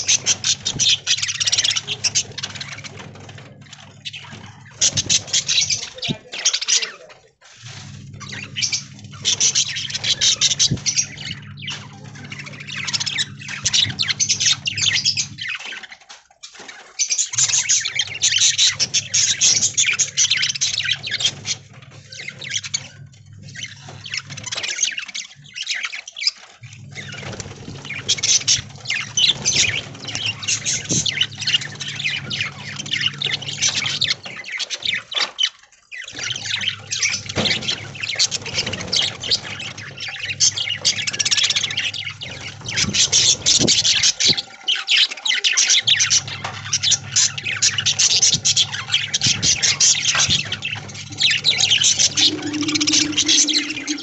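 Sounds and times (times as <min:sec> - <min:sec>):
budgerigars chattering and squawking: 0:00.0 - 0:54.0
steady low hum: 0:45.9 - 0:54.0.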